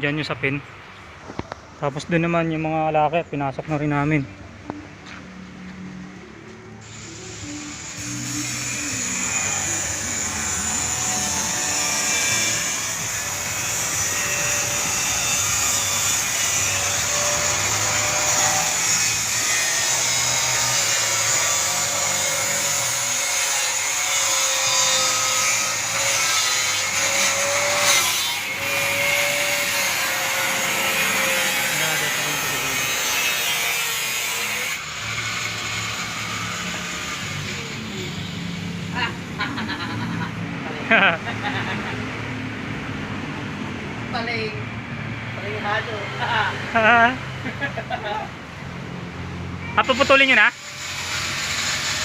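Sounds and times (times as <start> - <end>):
angle grinder cutting: 6.8 - 42.8, 49.2 - 52.0.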